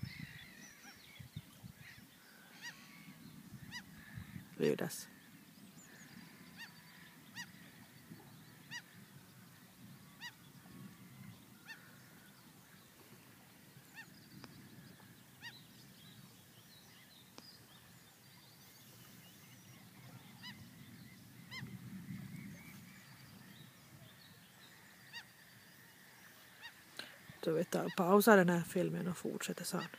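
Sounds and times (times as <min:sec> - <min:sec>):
faint short bird calls: 0:01.8 - 0:09.0.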